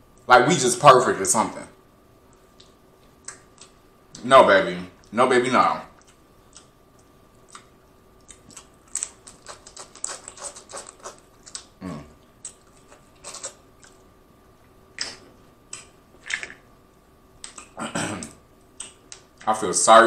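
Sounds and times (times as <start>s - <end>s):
wet chewing and lip smacking: 2.3s - 3.8s, 6.0s - 14.1s, 17.4s - 17.8s.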